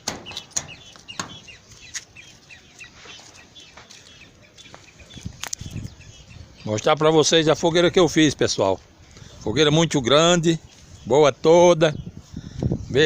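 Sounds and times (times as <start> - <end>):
sharp knocks: 0.0 - 1.6
chickens clucking: 0.0 - 10.9.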